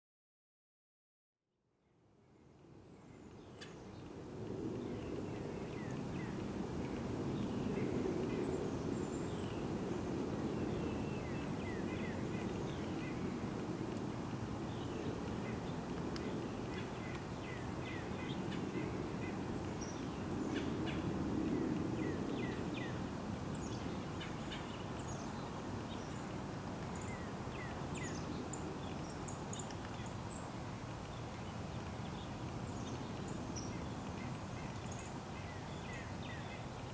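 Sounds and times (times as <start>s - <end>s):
small birds chirping: 14.6s - 36.9s.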